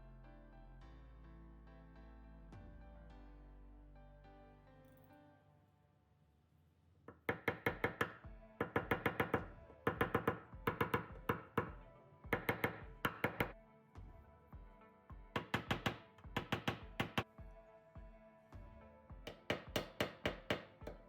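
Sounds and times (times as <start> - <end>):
background music: 0.0 - 6.4, 7.1 - 21.0
hammer tapping on steel panel: 7.1 - 13.6, 15.4 - 17.3, 19.2 - 21.0.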